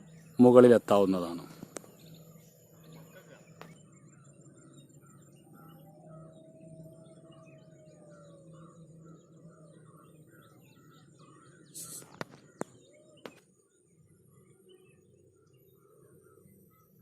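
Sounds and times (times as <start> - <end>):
small birds chirping: 0.0 - 17.0
brief hiss: 11.8 - 12.2.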